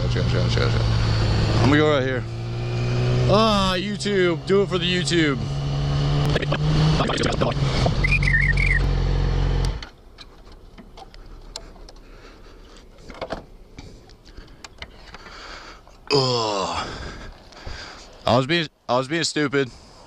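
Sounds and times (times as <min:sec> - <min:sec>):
motorcycle engine running: 0:00.0 - 0:09.9
high warbling tone: 0:06.1 - 0:08.9
small clicks and knocks: 0:09.6 - 0:12.1.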